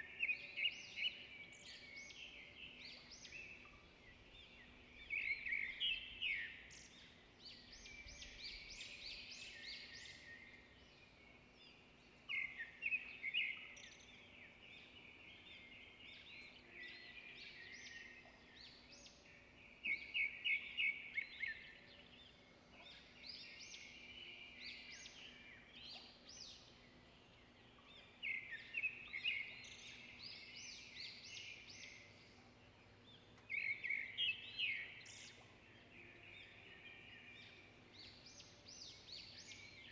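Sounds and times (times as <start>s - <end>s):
small songbirds twittering: 0.0s - 39.9s.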